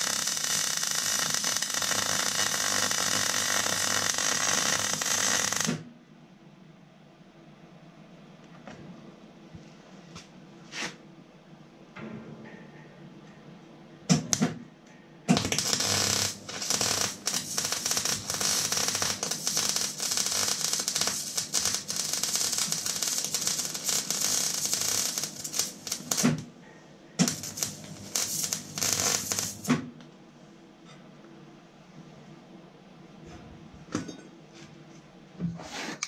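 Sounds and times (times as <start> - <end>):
arc welding crackle: 0.0 - 5.9, 15.3 - 26.5, 27.2 - 29.9.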